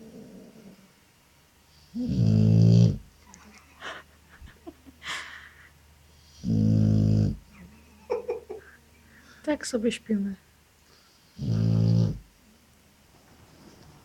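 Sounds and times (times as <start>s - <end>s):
dog snoring: 1.7s - 3.1s, 6.2s - 7.5s, 10.9s - 12.3s.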